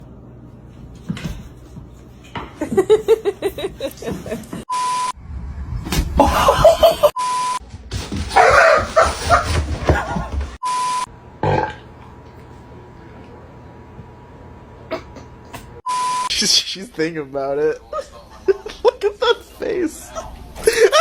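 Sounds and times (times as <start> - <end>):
short beep tones: 4.7 - 5.2, 7.2 - 7.6, 10.6 - 11.1, 15.9 - 16.3
dog yapping and barking: 8.3 - 9.6.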